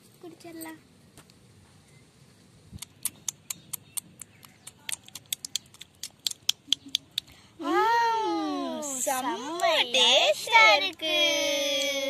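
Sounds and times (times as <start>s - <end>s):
small sharp clicks: 2.8s - 7.3s.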